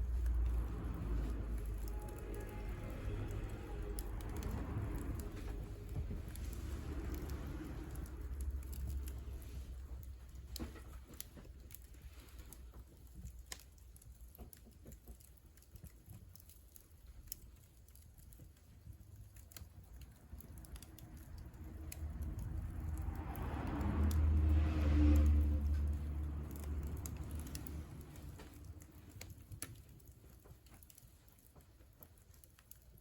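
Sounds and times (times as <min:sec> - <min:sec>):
low rumble: 0:00.0 - 0:11.2, 0:20.1 - 0:29.7
wood fire crackling: 0:00.0 - 0:33.0.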